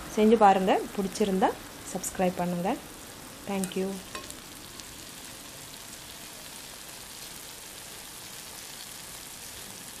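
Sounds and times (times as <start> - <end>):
pickle sizzling in oil: 0.0 - 10.0.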